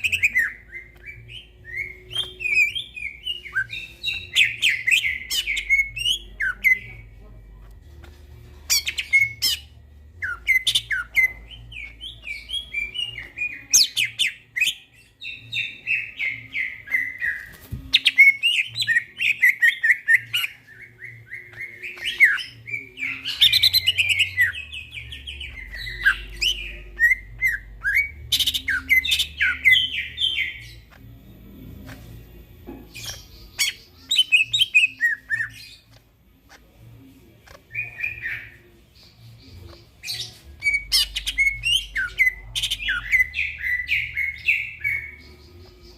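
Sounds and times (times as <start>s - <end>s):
bird singing chirps and whistles: 0.0s - 7.0s, 8.7s - 30.9s, 33.0s - 35.8s, 37.7s - 45.9s.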